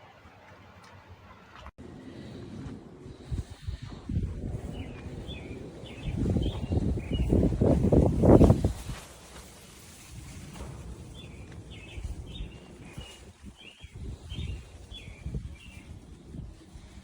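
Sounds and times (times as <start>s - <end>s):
low rumble of outdoor noise: 0.0s - 17.0s
bird chirping: 4.6s - 8.4s, 11.1s - 16.4s.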